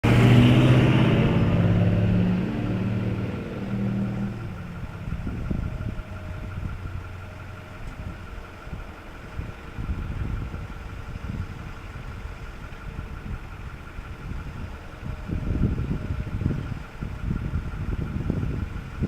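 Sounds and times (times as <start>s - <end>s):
truck engine rumbling: 0.0s - 19.0s.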